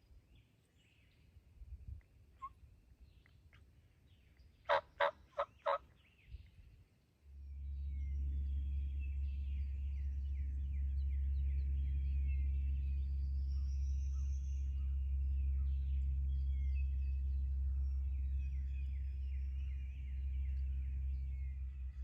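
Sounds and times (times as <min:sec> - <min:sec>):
songbirds chirping faintly: 0:00.0 - 0:22.0
turkey gobbling: 0:04.7 - 0:05.8
low rumble: 0:07.2 - 0:22.0.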